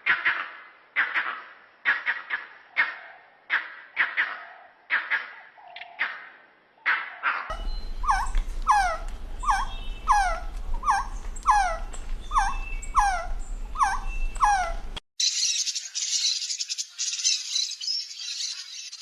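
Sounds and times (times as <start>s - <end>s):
low steady hum: 7.5s - 15.0s.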